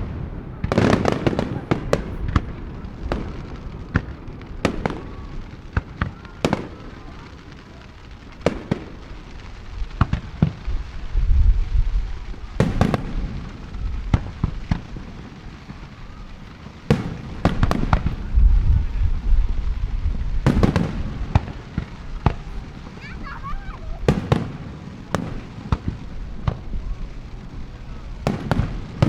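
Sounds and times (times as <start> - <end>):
fireworks bangs: 0.0 - 29.0
deep rolling booms: 8.0 - 29.0.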